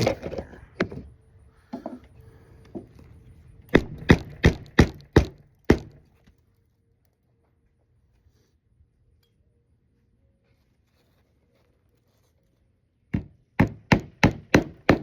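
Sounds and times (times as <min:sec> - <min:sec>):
hammer striking nails: 0:03.8 - 0:06.0, 0:13.1 - 0:15.0.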